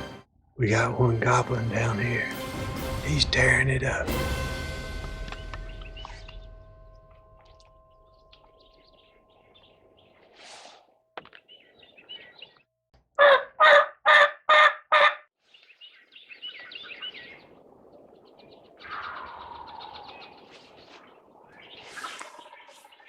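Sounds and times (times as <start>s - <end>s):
songbird chirping: 5.0s - 13.9s, 15.4s - 23.0s
turkey yelps: 13.2s - 15.2s, 18.8s - 20.2s.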